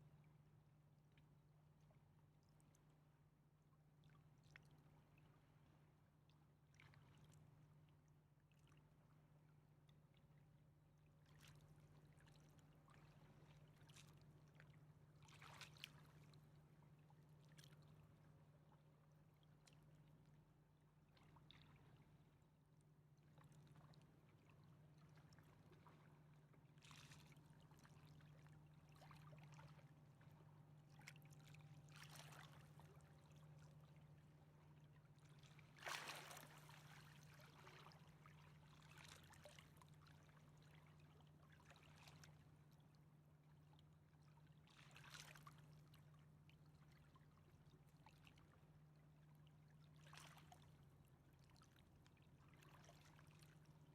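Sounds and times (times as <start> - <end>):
river water lapping: 31.3 - 33.4, 35.2 - 39.8.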